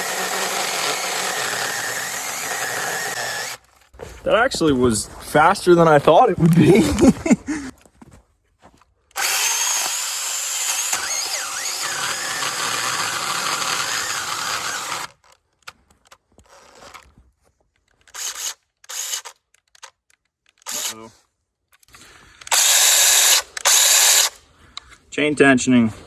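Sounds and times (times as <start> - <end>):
chainsaw cutting wood: 0.0 - 3.8, 9.1 - 15.8, 16.4 - 17.2, 18.0 - 19.5, 20.6 - 21.1, 22.0 - 24.4.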